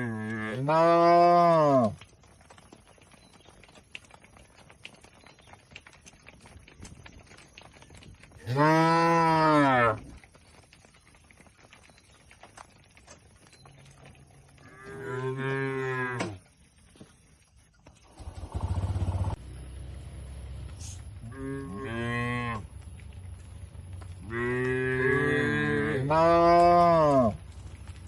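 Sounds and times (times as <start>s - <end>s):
cattle mooing: 0.0s - 2.0s, 8.4s - 10.0s, 14.6s - 16.4s, 21.2s - 22.7s, 24.2s - 27.4s.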